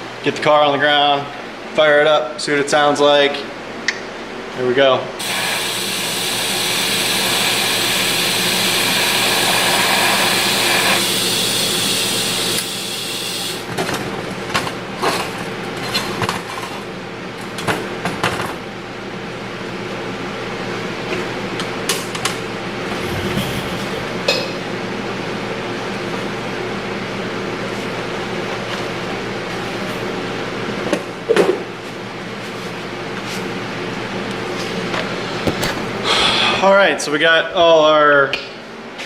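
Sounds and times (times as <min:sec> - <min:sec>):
electric welding crackling hiss: 0:05.2 - 0:13.6.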